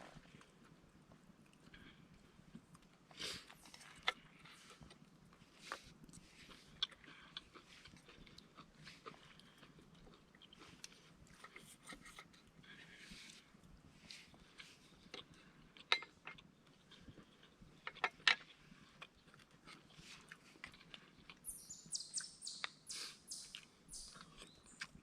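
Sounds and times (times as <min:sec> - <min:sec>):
songbird chirping: 0:21.4 - 0:25.0.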